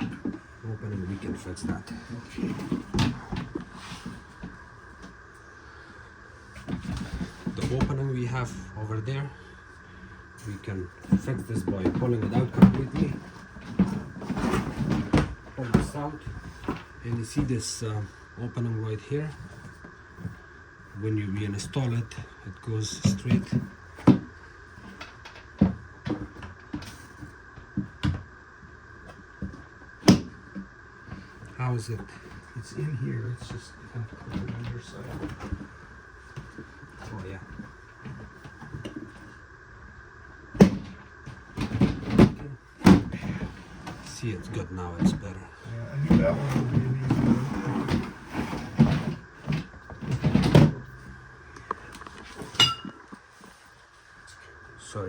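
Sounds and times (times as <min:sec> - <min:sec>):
freezer drawer knocks and clunks: 0:11.1 - 0:16.8, 0:41.6 - 0:43.6, 0:46.0 - 0:50.9
sharp metallic clink: 0:52.6 - 0:53.0.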